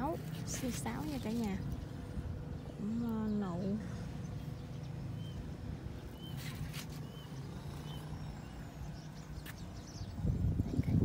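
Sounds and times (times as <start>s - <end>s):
small bird chirping: 2.5s - 11.0s
brief rustle: 6.3s - 7.1s.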